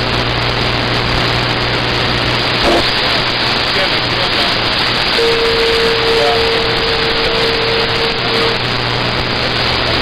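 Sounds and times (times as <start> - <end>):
radio static hiss: 0.0 - 10.0
whistle-like tone: 5.2 - 8.6.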